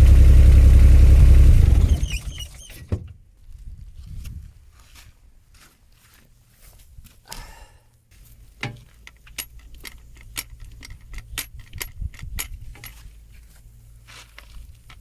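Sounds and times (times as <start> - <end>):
diesel engine idling: 0.0 - 2.5
metallic clicks and rattles: 8.6 - 13.1.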